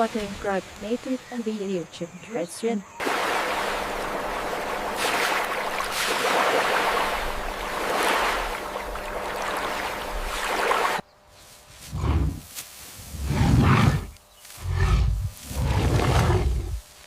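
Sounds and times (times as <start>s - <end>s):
rushing water surging: 3.0s - 11.0s.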